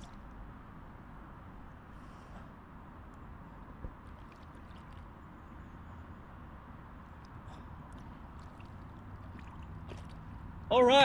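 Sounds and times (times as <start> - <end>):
lake water lapping: 4.0 - 5.3, 7.3 - 10.7.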